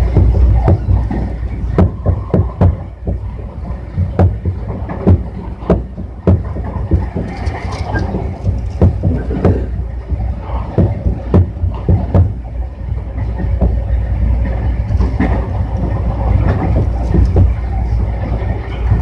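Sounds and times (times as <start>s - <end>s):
train low rumble: 0.0s - 19.0s.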